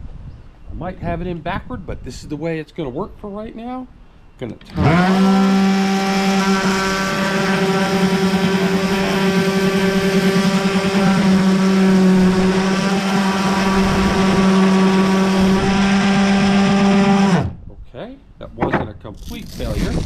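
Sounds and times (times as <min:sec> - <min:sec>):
electric orbital sander running: 0:04.7 - 0:17.5.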